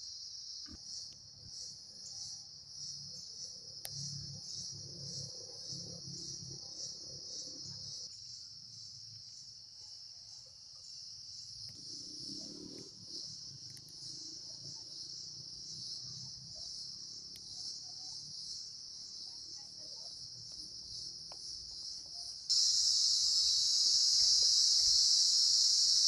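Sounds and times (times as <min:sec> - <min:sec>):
crickets chorus: 0:00.0 - 0:26.0.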